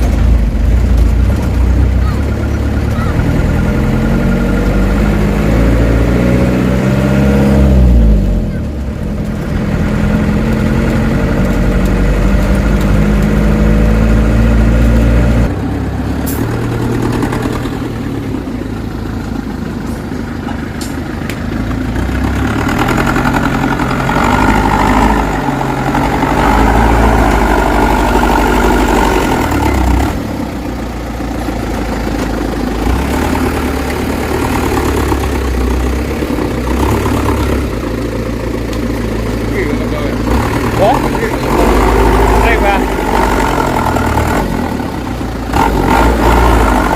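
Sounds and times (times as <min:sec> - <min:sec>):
diesel truck engine running: 0:00.0 - 0:46.9.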